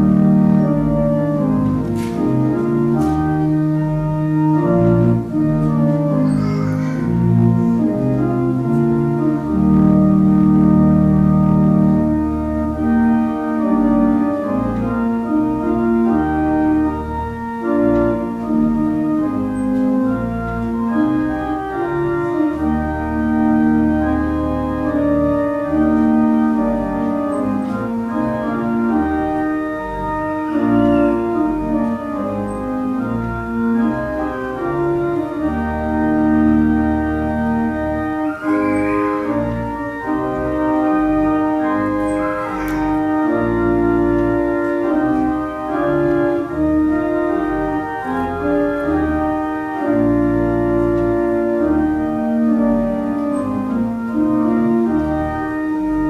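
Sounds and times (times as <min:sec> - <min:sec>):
church organ playing chords: 0:00.0 - 0:56.0.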